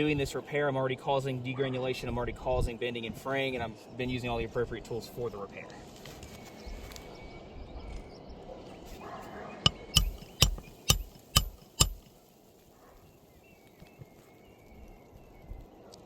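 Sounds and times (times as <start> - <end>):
hammer striking metal: 9.7 - 12.1.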